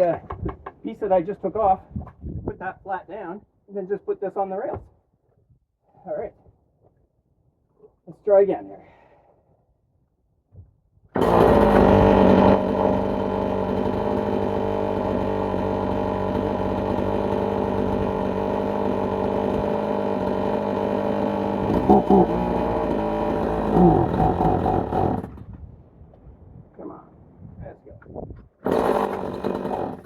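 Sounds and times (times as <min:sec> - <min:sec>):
chainsaw cutting log: 0:11.2 - 0:25.6, 0:28.6 - 0:30.0.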